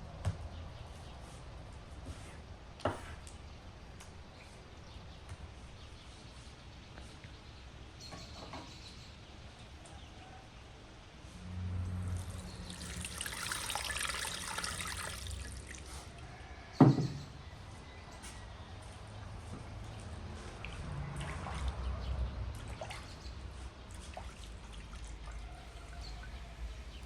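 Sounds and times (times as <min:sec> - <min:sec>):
water pouring and splashing: 0:11.9 - 0:16.2, 0:23.9 - 0:27.0.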